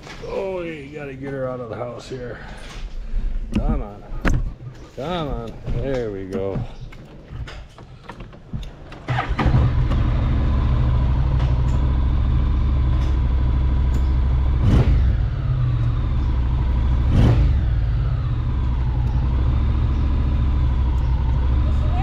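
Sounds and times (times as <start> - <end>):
engine revving blips: 9.1 - 22.0
motorcycle engine idling: 9.1 - 22.0.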